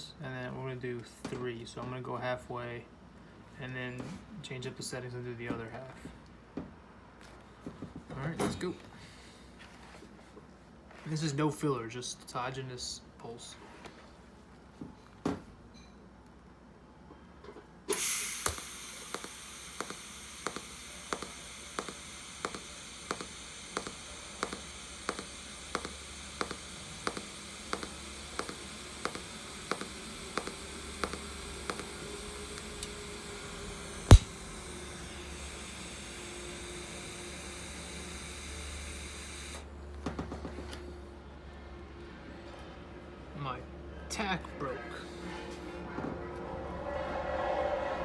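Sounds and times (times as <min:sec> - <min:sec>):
welder pulse clicks: 0:17.9 - 0:39.6
welding arc hissing buzz: 0:17.9 - 0:39.6
sharp loud snap: 0:34.1 - 0:34.4.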